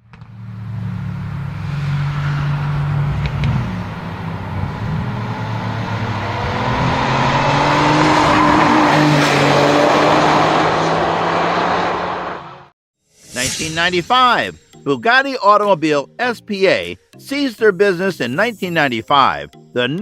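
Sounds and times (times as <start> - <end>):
car engine running: 0.0 - 8.6.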